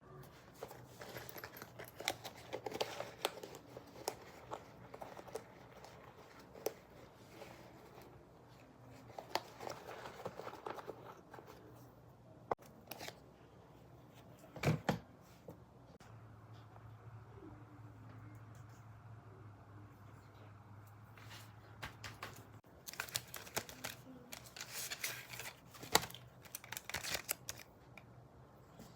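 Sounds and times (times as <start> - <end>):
packaging rustling and crinkling: 0.5 - 8.1, 8.9 - 11.7, 22.8 - 27.7.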